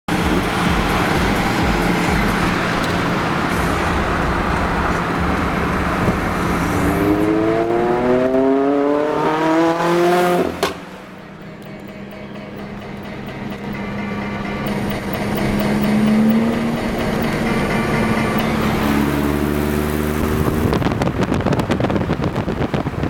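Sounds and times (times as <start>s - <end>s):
exhaust sharp crack: 0.1s - 11.4s
car engine accelerating: 0.1s - 23.0s.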